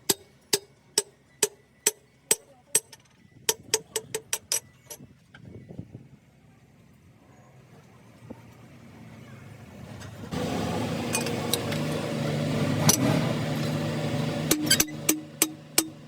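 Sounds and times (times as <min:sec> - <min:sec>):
machine running steadily: 0:00.0 - 0:04.8, 0:10.3 - 0:16.0
sharp metallic clicks: 0:14.5 - 0:16.0.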